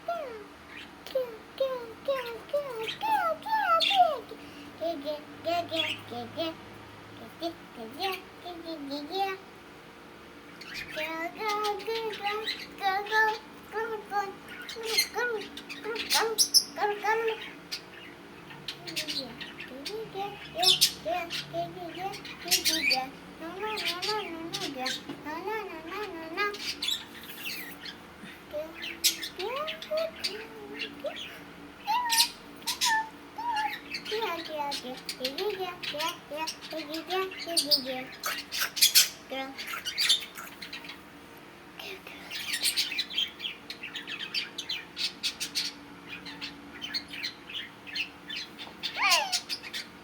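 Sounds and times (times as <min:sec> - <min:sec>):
budgerigars chattering: 0:28.8 - 0:41.0, 0:42.3 - 0:50.0.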